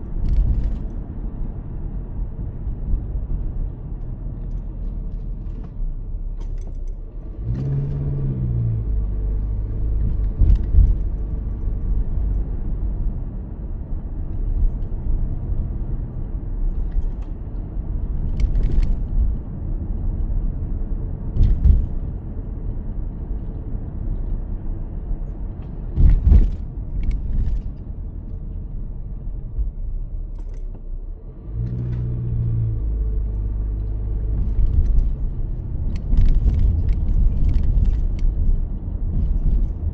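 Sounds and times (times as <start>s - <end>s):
car engine and road rumble: 0.0s - 39.9s
knocks and rattles: 21.4s - 22.0s, 25.9s - 27.8s.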